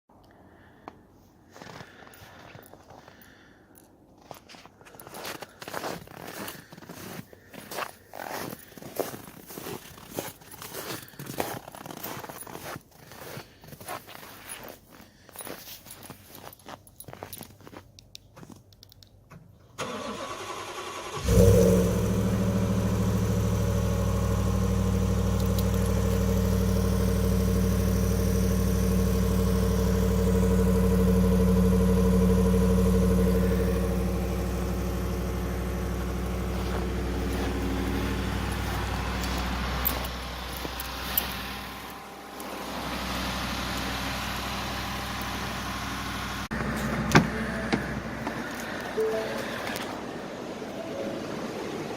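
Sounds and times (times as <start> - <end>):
engine cranking: 19.8 - 45.4
engine starting and idling: 19.8 - 50.0.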